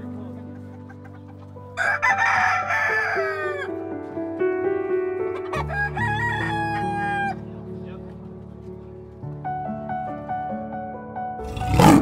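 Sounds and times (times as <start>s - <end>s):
background music: 0.0s - 12.0s
rooster crowing: 1.8s - 3.7s, 5.4s - 7.4s.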